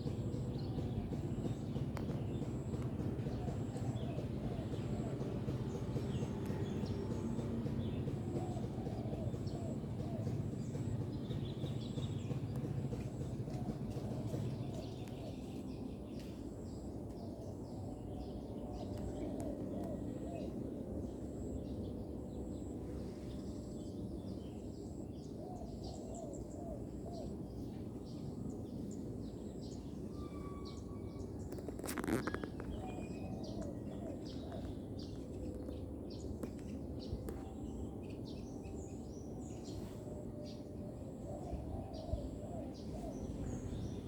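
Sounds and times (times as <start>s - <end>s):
small birds chirping: 0.0s - 20.5s, 30.6s - 44.0s.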